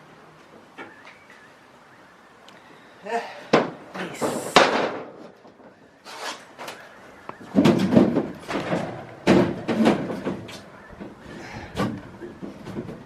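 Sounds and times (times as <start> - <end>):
knocks and thumps on caravan frame: 3.5 - 5.8, 7.4 - 13.0.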